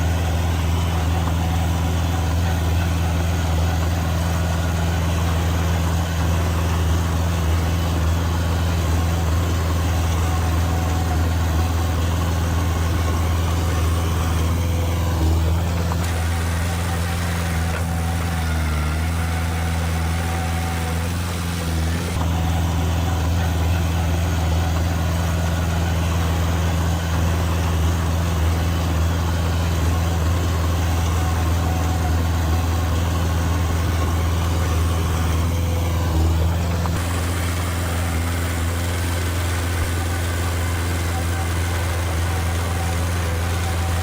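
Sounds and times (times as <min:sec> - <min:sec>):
heavy diesel engine running: 0:00.0 - 0:44.0.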